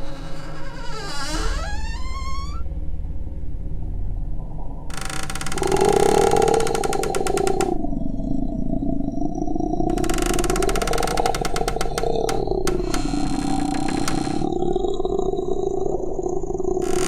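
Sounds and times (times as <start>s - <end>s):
low moaning drone: 4.6s - 8.6s
harsh rattling crackle: 4.9s - 7.8s, 9.9s - 14.5s.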